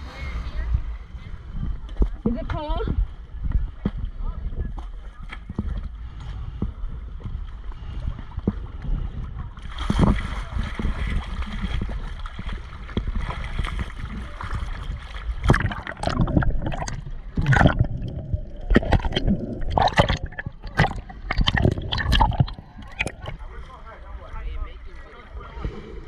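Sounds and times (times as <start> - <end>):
water sloshing and gurgling: 0.0 - 26.0
low rumble: 5.8 - 26.0
sharp water splashes: 9.7 - 23.5.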